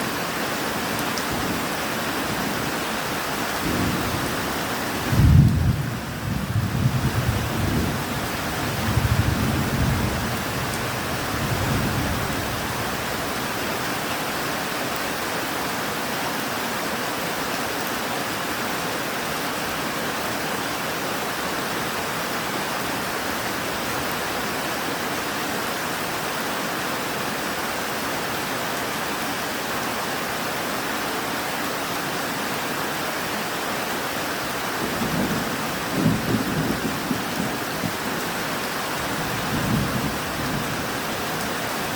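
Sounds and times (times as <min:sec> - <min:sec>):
steady rain: 0:00.0 - 0:41.9
rolling thunder: 0:05.0 - 0:08.0.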